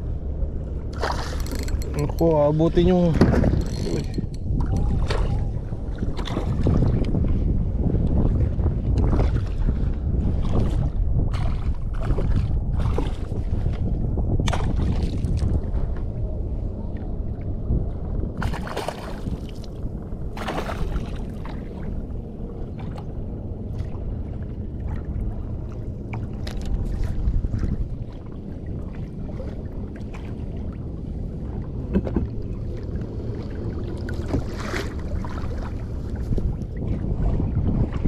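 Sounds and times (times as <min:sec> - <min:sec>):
water sloshing against hull: 0:00.0 - 0:38.0
wind rumble on microphone: 0:00.0 - 0:38.0
water splashes: 0:00.9 - 0:07.4, 0:14.4 - 0:15.9, 0:18.4 - 0:38.0.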